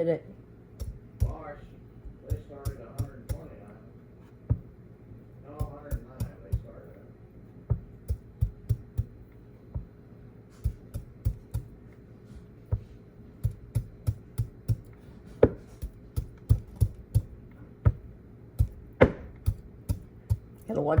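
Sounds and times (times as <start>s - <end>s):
faint hum: 0.0s - 21.0s
sharp irregular knocks: 0.8s - 3.5s, 12.7s - 21.0s.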